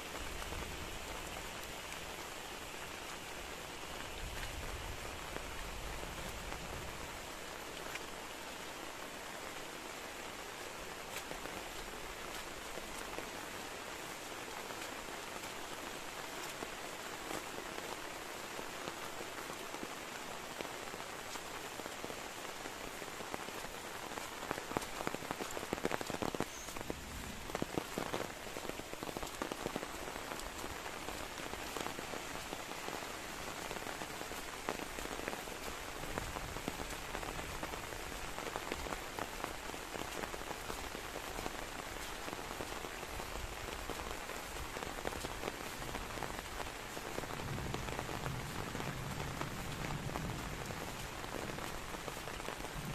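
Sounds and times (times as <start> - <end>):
rain falling: 0.0 - 52.9
heavy raindrop hits: 23.4 - 52.9.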